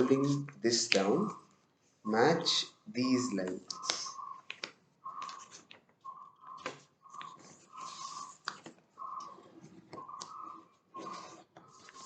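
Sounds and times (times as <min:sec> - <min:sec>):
paper rustling and creasing: 0:06.6 - 0:10.0, 0:10.6 - 0:12.0.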